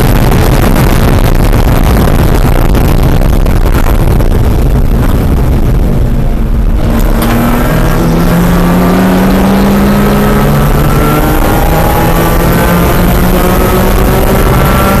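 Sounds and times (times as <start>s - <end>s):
wind and road noise: 0.0s - 15.0s
race car engine accelerating: 0.1s - 15.0s.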